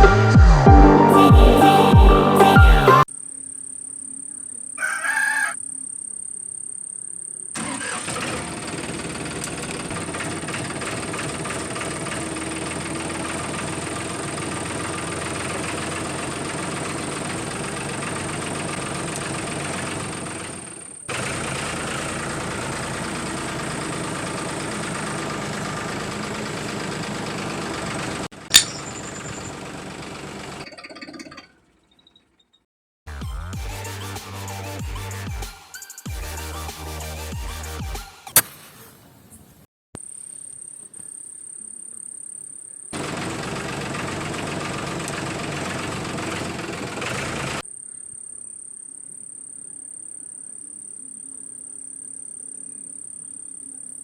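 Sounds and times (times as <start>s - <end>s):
sharp click: 28.5s - 29.0s, 38.3s - 38.7s.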